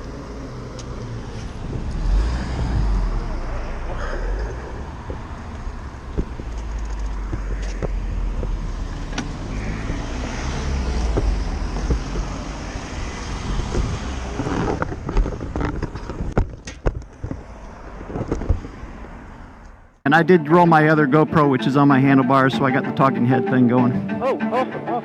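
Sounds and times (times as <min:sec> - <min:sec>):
wind noise: 0:01.1 - 0:19.9
sharp knocks and scrapes: 0:06.0 - 0:18.9.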